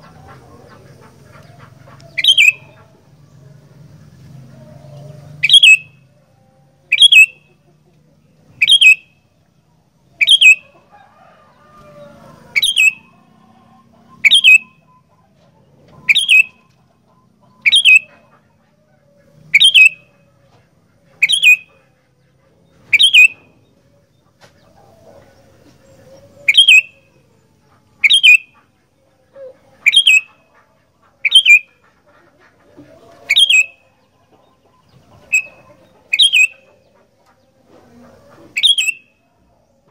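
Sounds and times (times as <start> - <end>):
bird giving sharp calls: 1.0 - 2.9, 5.4 - 6.0, 6.9 - 7.4, 8.6 - 9.2, 10.2 - 10.7, 12.5 - 13.2, 14.2 - 15.1, 16.0 - 16.7, 17.6 - 18.4, 19.5 - 20.2, 21.2 - 21.8, 22.9 - 23.5, 26.4 - 27.2, 27.9 - 28.7, 29.8 - 31.9, 33.3 - 33.8, 35.2 - 36.8, 38.5 - 39.1.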